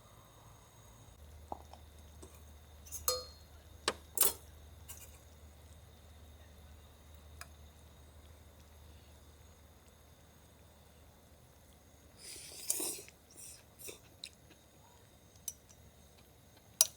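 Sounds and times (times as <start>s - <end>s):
tableware clinking: 2.9s - 5.1s.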